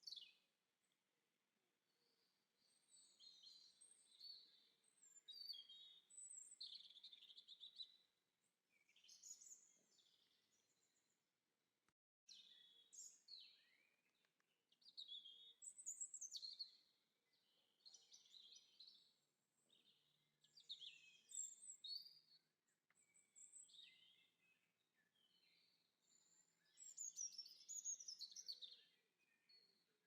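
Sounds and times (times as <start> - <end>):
birdsong chirps and trills: 23.0 - 29.8.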